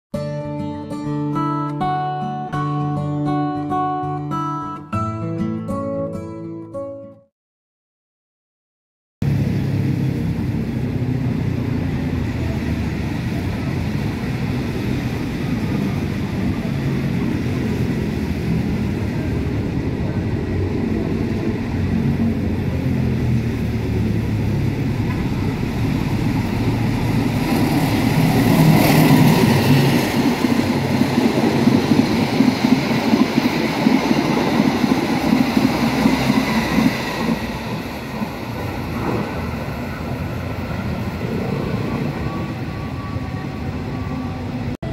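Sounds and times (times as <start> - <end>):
diesel train rumbling past: 9.2 - 44.9
rhythmic clatter of train wheels: 25.0 - 42.4.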